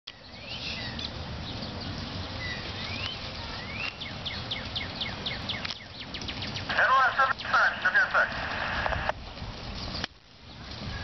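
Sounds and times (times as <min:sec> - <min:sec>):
birds whistling and chirping: 0:00.1 - 0:06.7, 0:09.8 - 0:11.0.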